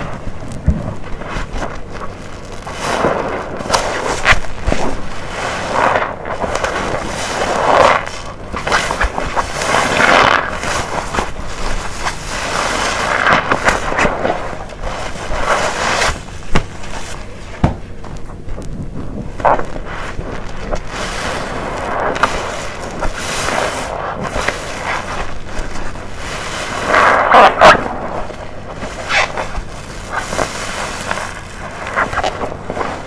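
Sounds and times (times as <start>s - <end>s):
wet sponge squelching: 0.0s - 33.0s.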